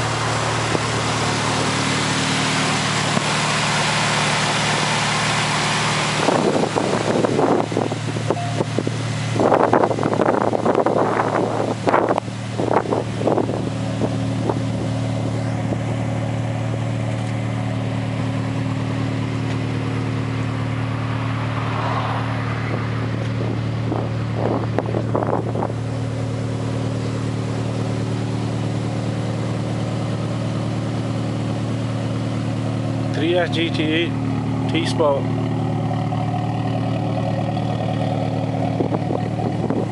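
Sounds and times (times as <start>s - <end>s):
car engine idling: 0.0s - 39.9s
short sharp engine sounds: 8.2s - 9.8s, 33.0s - 39.8s.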